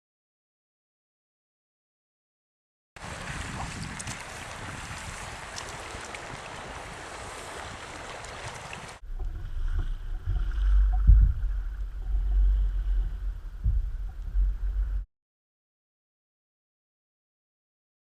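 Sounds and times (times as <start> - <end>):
rushing water: 3.0 - 15.0
wind buffeting microphone: 3.0 - 15.0.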